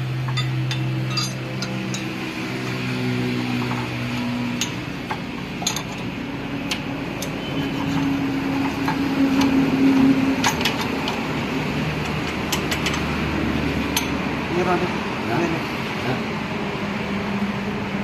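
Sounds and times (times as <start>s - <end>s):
metal tools clinking: 0.3s - 2.2s, 4.6s - 6.1s.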